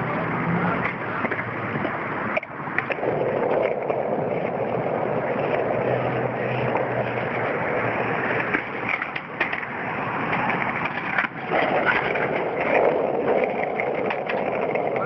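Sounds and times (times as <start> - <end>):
skateboard clacks: 0.0 - 15.0
skateboard wheels rolling on concrete: 0.0 - 15.0.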